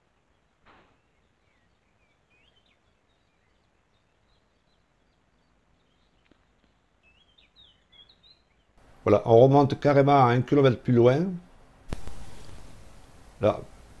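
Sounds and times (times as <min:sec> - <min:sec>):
small birds chirping: 0:00.0 - 0:10.5
faint click: 0:11.9 - 0:12.6.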